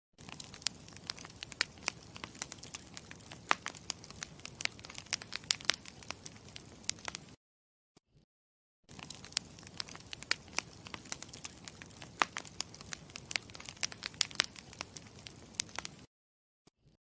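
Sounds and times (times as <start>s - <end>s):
campfire crackling and popping: 0.2s - 7.4s, 8.9s - 16.1s.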